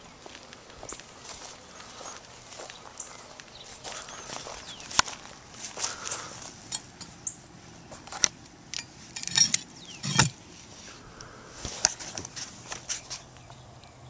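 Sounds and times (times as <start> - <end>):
light metallic clinks: 6.1 - 7.4.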